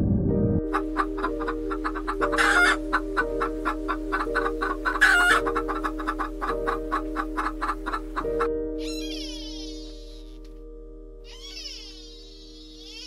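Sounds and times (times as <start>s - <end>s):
background music with held notes: 0.0s - 13.0s
fowl clucking: 0.7s - 9.1s
loud short bird calls: 8.8s - 10.4s, 11.3s - 13.0s.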